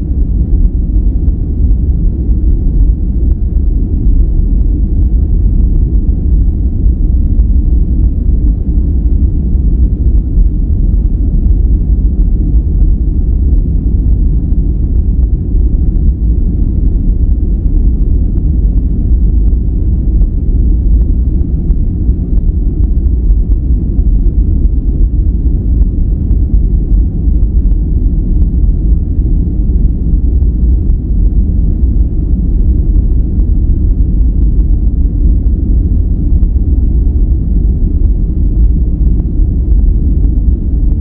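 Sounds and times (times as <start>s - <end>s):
deep rumbling noise: 0.0s - 41.0s.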